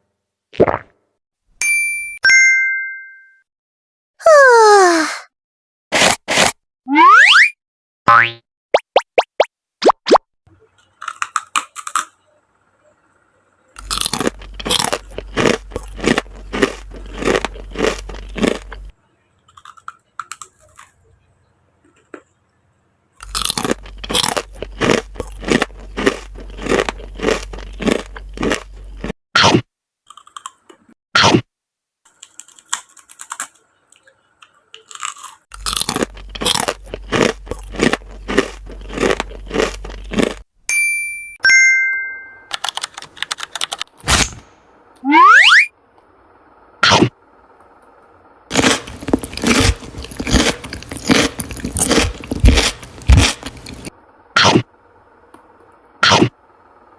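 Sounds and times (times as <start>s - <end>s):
cartoon sliding sound effect: 6.9s - 8.4s, 45.0s - 45.7s
crunching and chewing crisp food: 10.6s - 12.8s, 13.7s - 22.5s, 23.2s - 31.4s, 32.1s - 40.5s, 46.8s - 56.8s.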